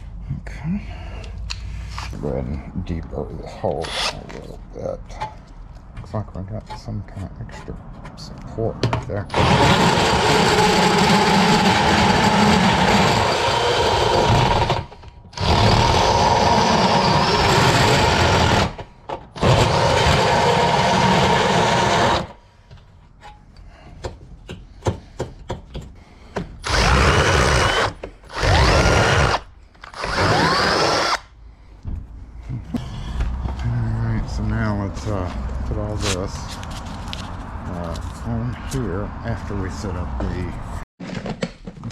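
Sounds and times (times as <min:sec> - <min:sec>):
power drill motor under load: 0:09.3 - 0:18.8, 0:19.4 - 0:22.3, 0:26.6 - 0:31.3.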